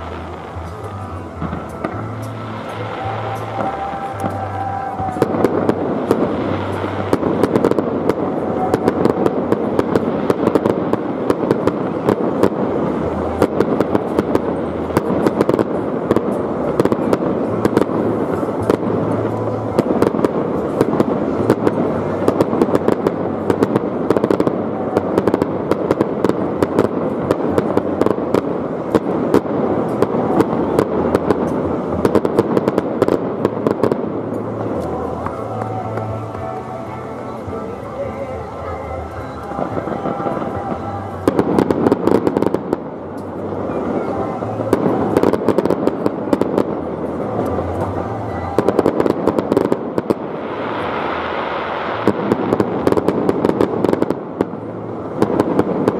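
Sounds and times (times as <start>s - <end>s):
sparkling firework crackle: 0.0s - 55.9s.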